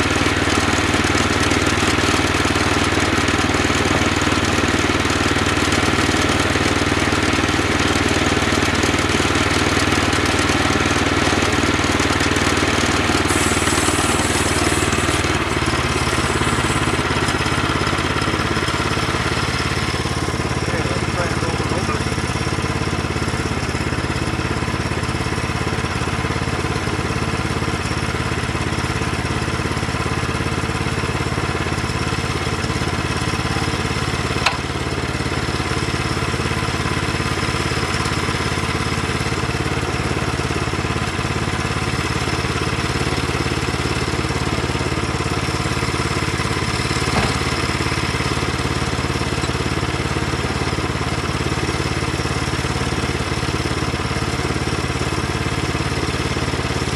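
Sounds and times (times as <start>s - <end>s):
engine running steadily: 0.0s - 56.9s.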